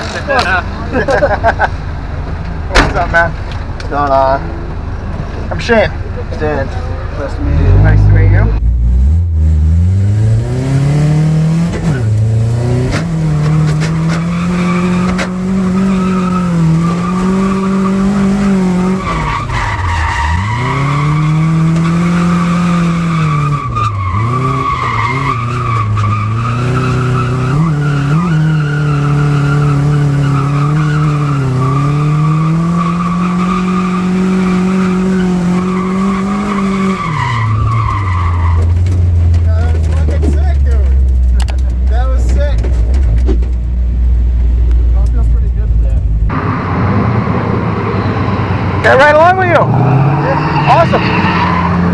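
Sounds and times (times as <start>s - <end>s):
car engine at high revs: 7.2s - 51.9s
tyres squealing: 10.7s - 43.6s, 50.0s - 51.9s.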